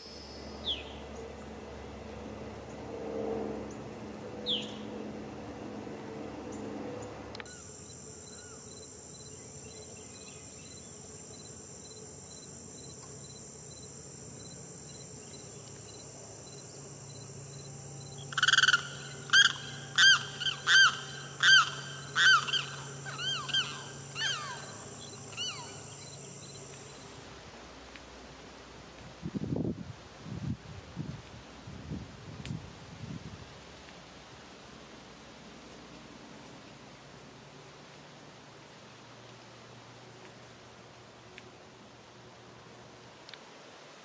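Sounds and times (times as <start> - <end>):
bird calling arched notes: 7.4 - 11.5, 18.1 - 26.6
insect buzzing: 7.4 - 28.3.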